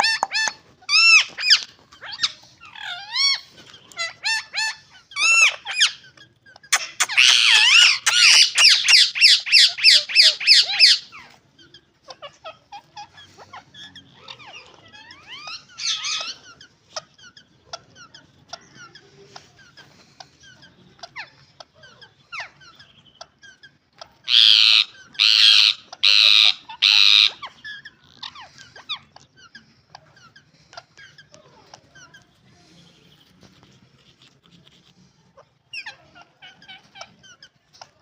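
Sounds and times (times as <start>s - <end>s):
parakeets squawking: 0.0s - 34.4s, 35.1s - 38.0s
soft bird chatter and clicks: 0.0s - 38.0s.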